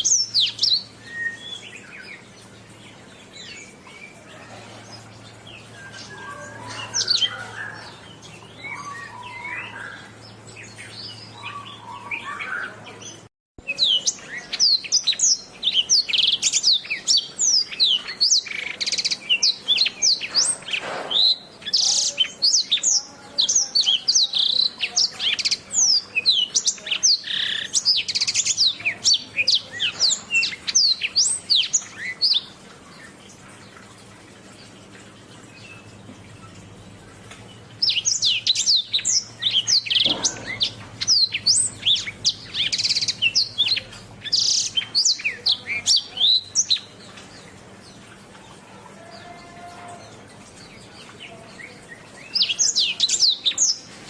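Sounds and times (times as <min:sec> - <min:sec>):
canary singing: 0:00.0 - 0:33.2, 0:35.4 - 0:53.9.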